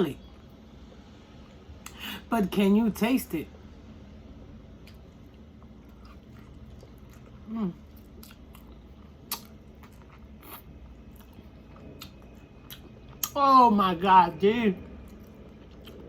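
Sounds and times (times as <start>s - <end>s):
chewing chicken wings: 5.6s - 13.4s
wet mouth clicks and smacks: 9.3s - 9.5s.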